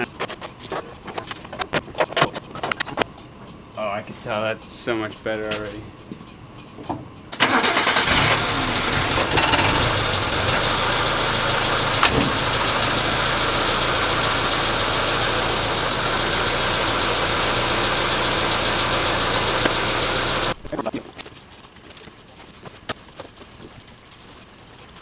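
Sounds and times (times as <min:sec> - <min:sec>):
car engine idling: 0:07.4 - 0:20.6.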